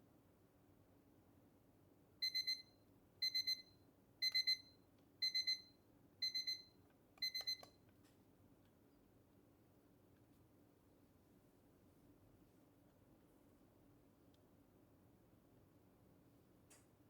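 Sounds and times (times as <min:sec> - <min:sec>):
kitchen timer beeping: 0:02.2 - 0:07.7
timer clicks: 0:07.2 - 0:07.7.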